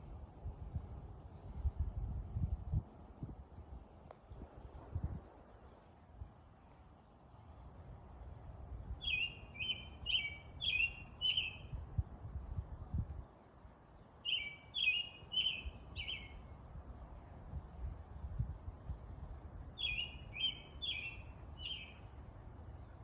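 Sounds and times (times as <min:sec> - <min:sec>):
songbird chirping: 0:08.5 - 0:11.8, 0:13.2 - 0:16.8, 0:19.8 - 0:23.0
high thin bird calls: 0:08.6 - 0:11.8, 0:14.2 - 0:16.7, 0:19.8 - 0:22.3.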